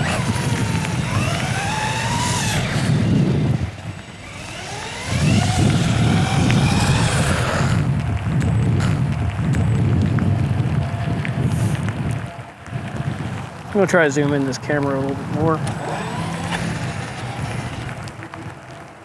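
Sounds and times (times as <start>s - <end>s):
electric motor whining: 0.0s - 10.2s, 14.3s - 18.3s
bumper rattle: 0.0s - 11.9s, 12.9s - 18.5s
tyre and drivetrain rumble: 0.0s - 19.0s.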